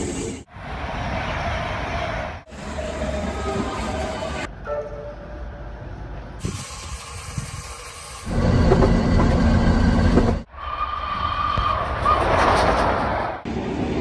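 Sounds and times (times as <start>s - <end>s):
tram passing: 0.0s - 6.4s, 7.8s - 14.0s
train running from the cab: 0.0s - 14.0s
steam train hissing: 6.4s - 9.2s.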